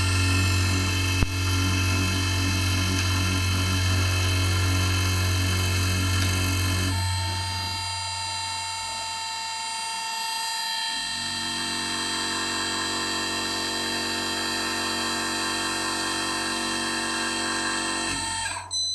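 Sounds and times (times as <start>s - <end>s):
low hum: 0.0s - 9.4s
machine motors whining: 0.0s - 18.9s.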